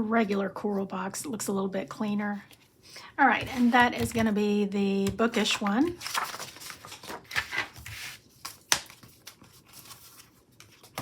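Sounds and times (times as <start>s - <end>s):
paper rustling: 3.4s - 4.3s, 5.3s - 11.0s.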